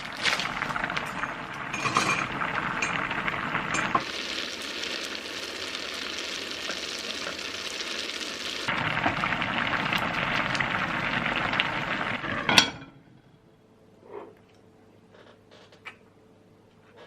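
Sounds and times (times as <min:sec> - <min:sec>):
food sizzling in a frying pan: 0:00.0 - 0:12.5
clinks and stirring: 0:00.9 - 0:04.0.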